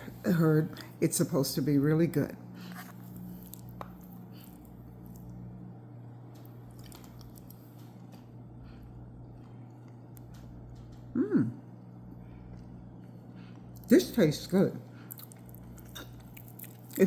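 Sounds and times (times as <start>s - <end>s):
steady low hum: 0.0s - 17.0s
person chewing food: 2.6s - 13.9s, 14.9s - 17.0s
person humming mm: 11.1s - 11.7s.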